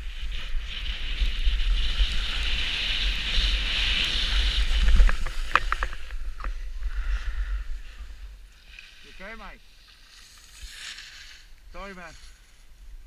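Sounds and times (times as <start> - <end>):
wind buffeting microphone: 0.0 - 9.7
sliding over snow: 0.1 - 13.0
sharp clattering knocks: 4.9 - 6.6.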